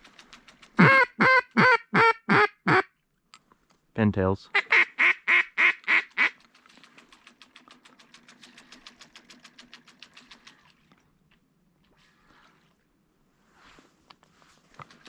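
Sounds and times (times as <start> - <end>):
duck call soft clucks: 0.3 - 2.9, 4.5 - 10.7.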